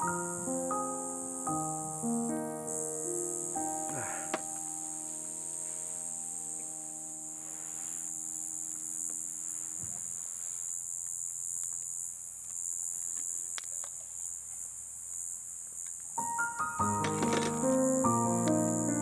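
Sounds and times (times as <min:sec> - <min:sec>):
soft piano music: 0:00.0 - 0:09.6, 0:16.2 - 0:19.0
night insects chorus: 0:00.0 - 0:19.0.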